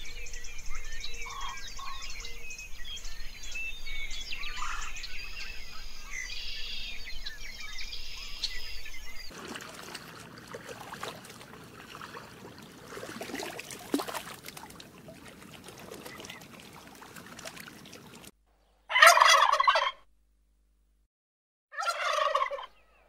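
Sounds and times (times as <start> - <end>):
water splashing and lapping: 9.3 - 18.4
turkey gobbling: 18.9 - 20.0, 21.7 - 22.8.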